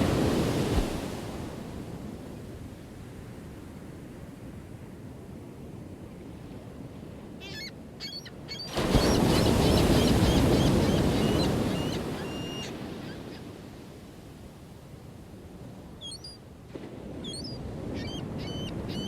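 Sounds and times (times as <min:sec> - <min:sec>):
ocean wave crashing: 0:00.0 - 0:01.8
low steady surf: 0:00.0 - 0:19.0.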